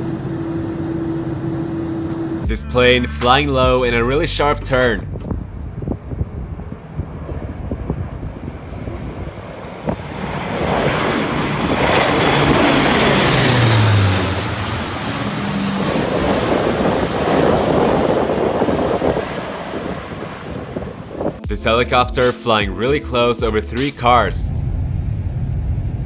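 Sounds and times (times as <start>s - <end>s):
low-flying airplane engine roar: 0.0s - 2.5s, 3.9s - 21.5s, 24.4s - 26.0s
wind buffeting microphone: 5.0s - 14.1s, 15.5s - 21.5s.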